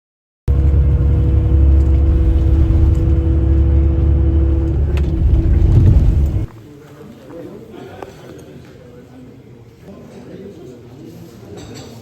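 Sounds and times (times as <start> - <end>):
steady tones: 0.5 - 6.5
vehicle engine rumble: 0.5 - 6.5.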